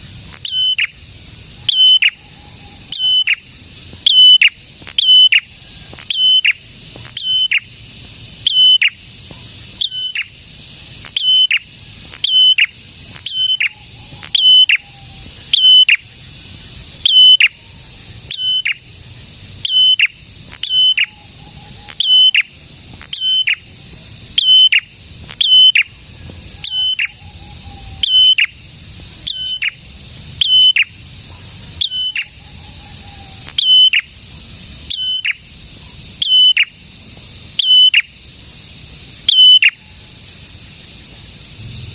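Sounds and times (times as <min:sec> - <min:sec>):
faint lower bird note: 0:41.6 - 0:41.9.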